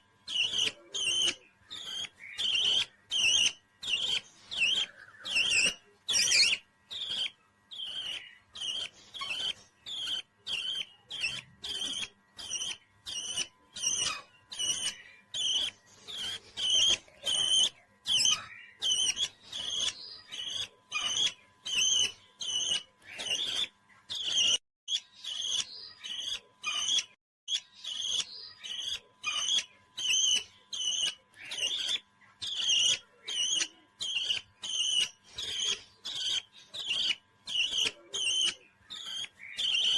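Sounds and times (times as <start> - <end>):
parrot shrill chirps: 0.3 - 39.9.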